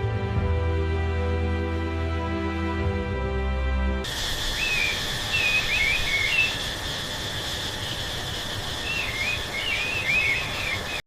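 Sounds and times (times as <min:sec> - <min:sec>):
steady high drone and hiss: 0:01.1 - 0:11.0
birds chirping: 0:04.1 - 0:11.0.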